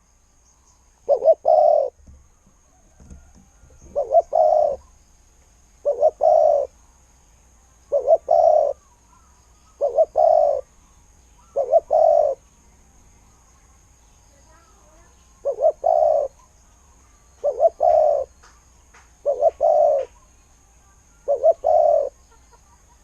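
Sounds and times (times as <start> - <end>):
dove cooing: 1.0 - 5.0, 5.8 - 6.7, 7.8 - 10.7, 11.4 - 12.4, 15.4 - 16.4, 17.4 - 18.3, 19.2 - 20.2, 21.2 - 22.4.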